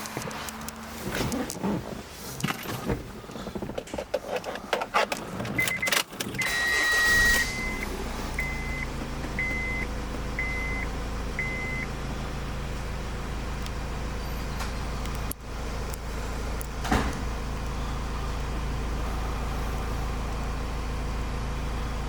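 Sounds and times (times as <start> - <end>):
car engine cranking and idling: 0.0 - 22.0
dashboard warning chime beeping: 5.6 - 11.9.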